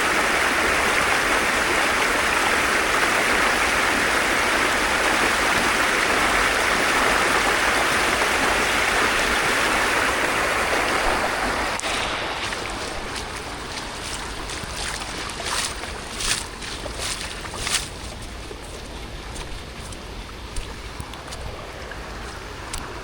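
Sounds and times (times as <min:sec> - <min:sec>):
water rushing in rain: 0:00.0 - 0:18.7.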